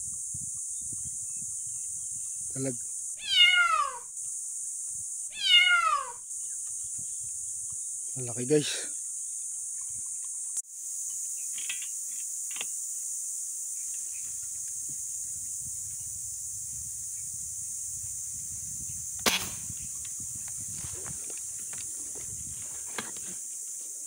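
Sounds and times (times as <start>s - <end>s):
high-pitched insect chorus: 0.0s - 24.0s
sharp click: 19.2s - 19.7s.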